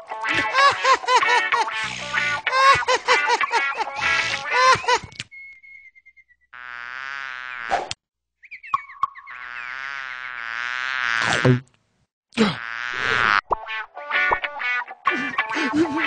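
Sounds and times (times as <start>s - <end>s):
faint falling whistle tone: 5.3s - 6.5s.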